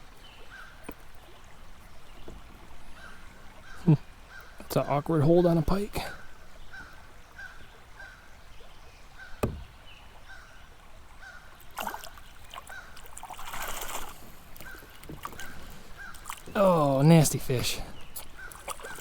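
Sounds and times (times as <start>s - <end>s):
bird calling: 0.0s - 13.2s, 13.8s - 19.0s
sharp knock: 9.4s - 9.8s
water rushing: 11.8s - 19.0s.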